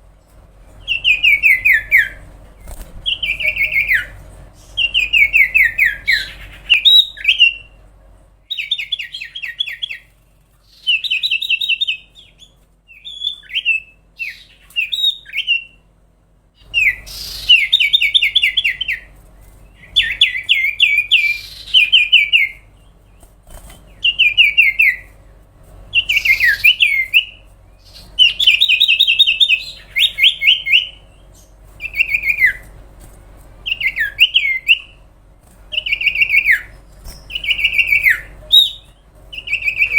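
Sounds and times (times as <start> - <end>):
bird whistling downward notes: 25.9 - 31.0.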